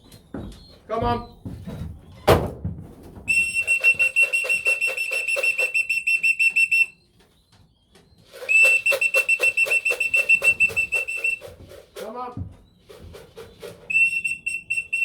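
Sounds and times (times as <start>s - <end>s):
trilling whistle blasts: 3.3s - 7.0s, 8.4s - 11.5s, 13.9s - 15.0s.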